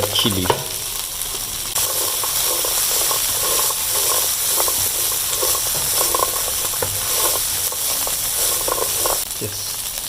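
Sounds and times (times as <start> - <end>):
food sizzling in a pan: 0.0 - 10.0
stirring scrapes and taps: 1.3 - 9.3.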